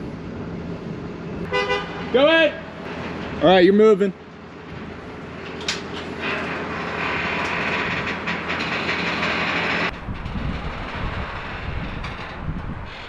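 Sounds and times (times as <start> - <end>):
heavy machinery clattering: 2.7 - 13.0
low rumble: 6.6 - 13.0.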